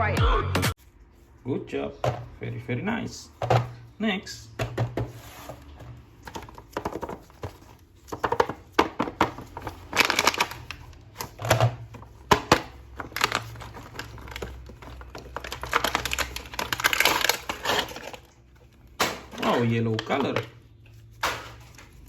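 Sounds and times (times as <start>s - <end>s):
plastic packaging crinkling: 5.6s - 22.0s.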